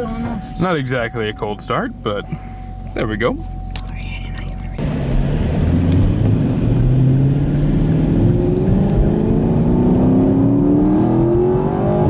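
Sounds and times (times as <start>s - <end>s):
car engine accelerating: 4.8s - 12.0s.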